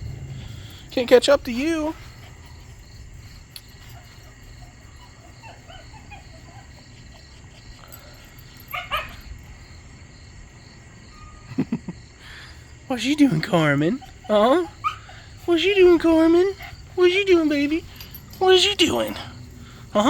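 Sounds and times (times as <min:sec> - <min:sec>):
puppies whimpering and yipping: 0:03.4 - 0:09.3, 0:13.2 - 0:20.0.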